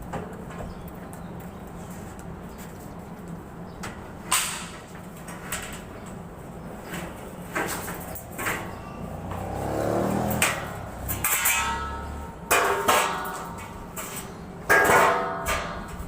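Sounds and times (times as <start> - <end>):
vehicle engine hum: 5.9 - 14.7
sharp clunks and rattles: 6.9 - 13.8.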